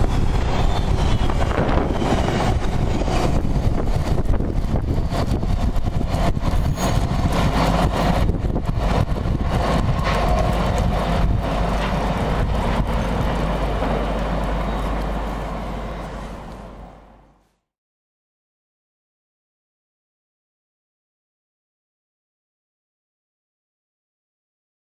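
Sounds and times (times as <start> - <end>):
train rumble: 0.0 - 17.6
wagon wheels clattering over rail joints: 2.2 - 17.2.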